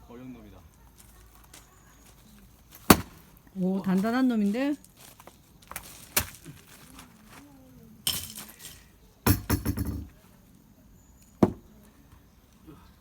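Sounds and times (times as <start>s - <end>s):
axe striking log: 2.9s - 3.2s.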